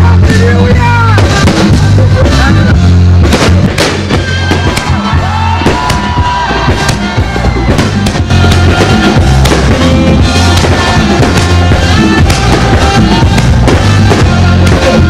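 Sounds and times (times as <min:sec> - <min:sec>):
fireworks bursting and crackling: 0:00.0 - 0:15.0
loud music with heavy bass: 0:00.0 - 0:15.0.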